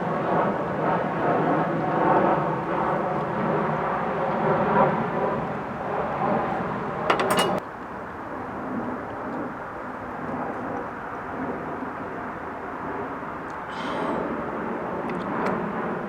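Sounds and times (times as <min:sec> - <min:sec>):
glass clinks ringing: 0:07.1 - 0:07.6.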